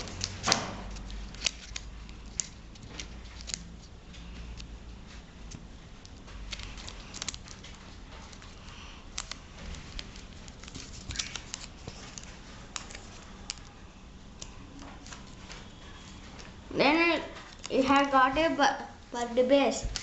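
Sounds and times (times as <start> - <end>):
paper crinkling while folded: 0.0 - 13.8, 17.2 - 18.6.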